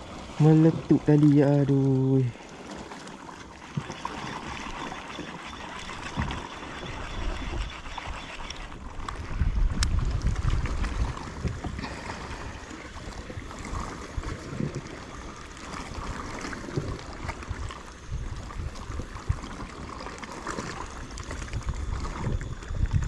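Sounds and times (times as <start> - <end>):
water lapping against a hull: 0.0 - 23.0
wind rumble on microphone: 6.0 - 23.0.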